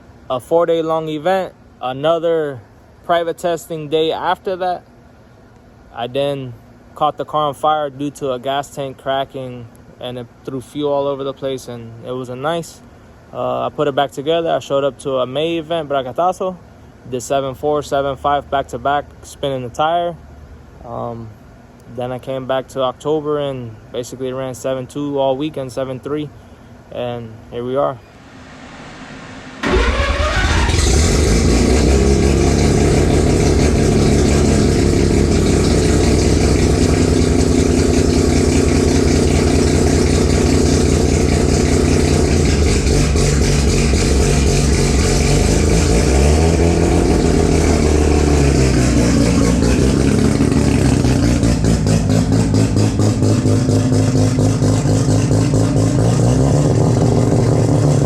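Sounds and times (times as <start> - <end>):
rotary engine revving: 28.1 - 58.0.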